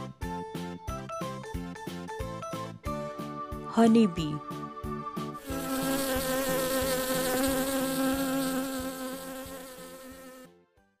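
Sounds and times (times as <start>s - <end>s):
honey bees buzzing: 5.4s - 10.5s.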